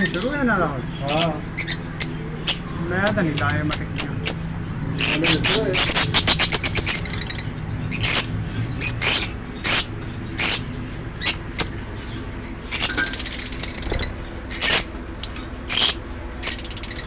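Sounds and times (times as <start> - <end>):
lovebirds squawking: 0.0 - 17.0
rattling chatter of bird calls: 0.0 - 17.0.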